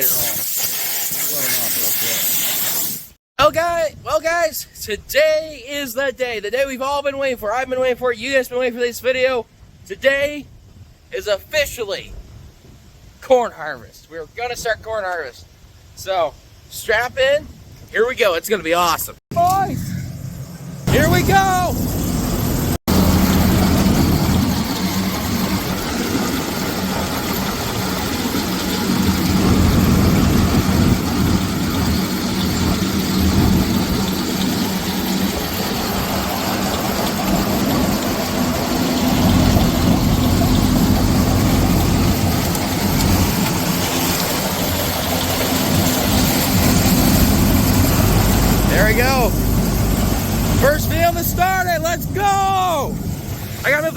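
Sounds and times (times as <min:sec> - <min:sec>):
combine harvester droning: 0:19.3 - 0:53.9.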